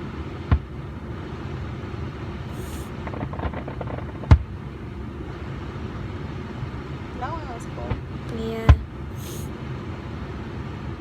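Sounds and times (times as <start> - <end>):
low background rumble: 0.0 - 11.0
faint firework pops: 2.6 - 4.5
firework bang: 2.6 - 4.6.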